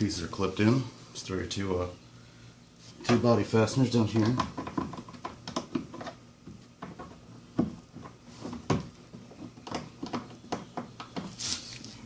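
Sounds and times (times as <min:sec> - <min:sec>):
plastic fasteners clicking and knocking: 0:04.1 - 0:11.4.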